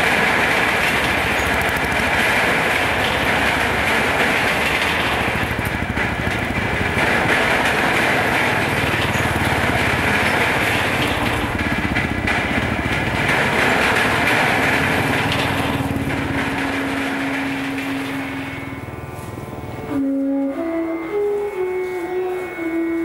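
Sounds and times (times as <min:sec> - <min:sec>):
motorcycle engine running: 0:00.0 - 0:19.9.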